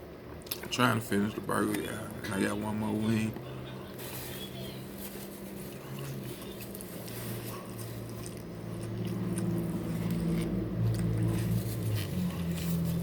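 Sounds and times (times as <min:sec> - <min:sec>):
chewing and mouth noises: 0:05.0 - 0:13.0.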